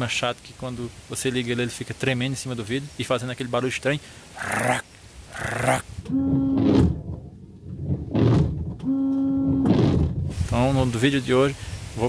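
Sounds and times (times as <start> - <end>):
wiper juddering with buzzing tone: 6.0 - 10.3.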